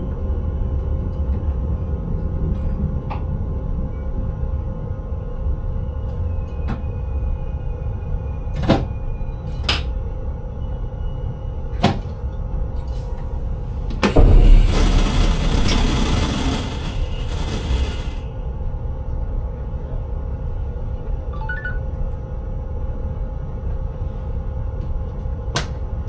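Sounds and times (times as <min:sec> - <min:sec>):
train rumble in cab: 0:12.7 - 0:21.0
loud rushing hiss: 0:13.6 - 0:18.3
wheels clicking over track: 0:13.9 - 0:18.3.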